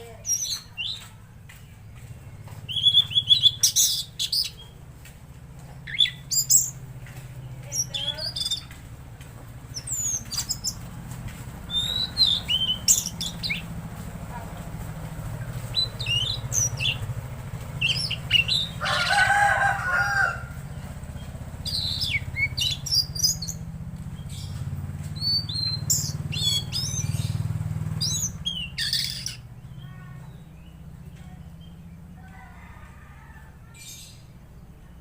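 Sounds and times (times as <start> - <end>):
songbird singing whistles and chirps: 0.1 - 4.8, 5.7 - 6.8, 7.4 - 8.8, 9.7 - 10.9, 11.7 - 13.7, 15.6 - 17.1, 17.7 - 18.8, 21.6 - 23.6, 24.2 - 32.0.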